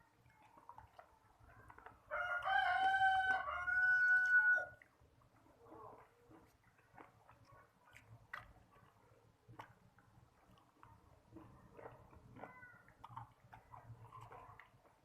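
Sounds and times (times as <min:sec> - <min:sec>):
rooster crowing: 0:02.1 - 0:04.8.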